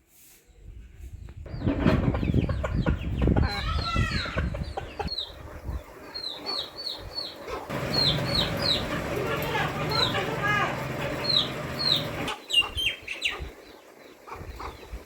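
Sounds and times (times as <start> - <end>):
chickens calling: 1.5 - 15.0.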